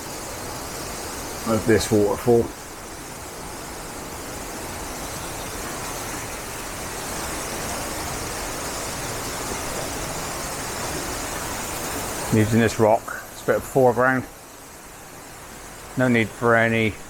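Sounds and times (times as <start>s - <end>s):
waterfall and rushing river: 0.0s - 17.0s.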